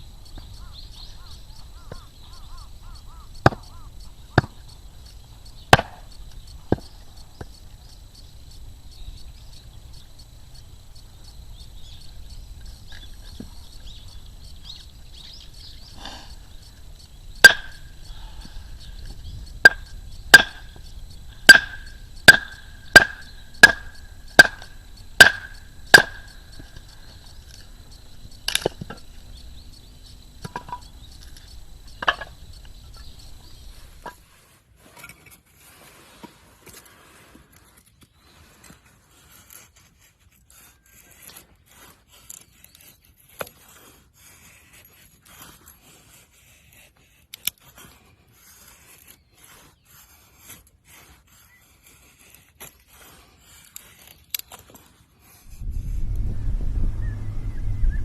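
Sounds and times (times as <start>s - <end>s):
sharp ringing striking blows: 17.4s - 18.9s, 19.6s - 27.5s.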